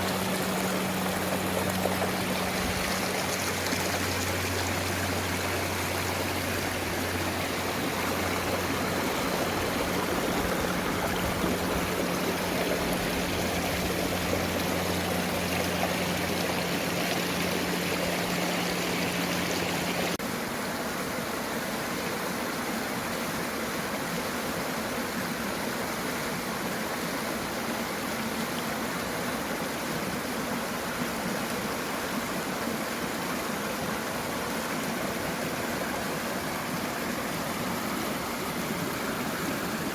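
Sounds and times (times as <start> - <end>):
low steady hum: 0.0 - 20.2
stream rushing over rocks: 0.0 - 39.9.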